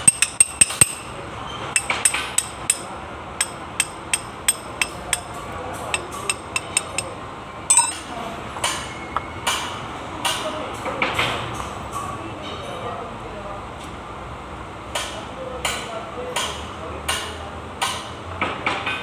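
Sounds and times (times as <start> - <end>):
hammer tapping on metal: 0.0 - 1.1, 1.8 - 7.1, 7.7 - 8.0.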